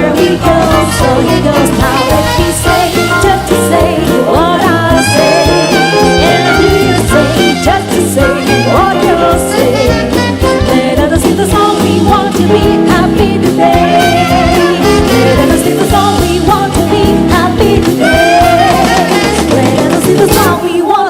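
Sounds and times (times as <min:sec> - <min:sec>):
swing jazz band playing: 0:00.0 - 0:21.0.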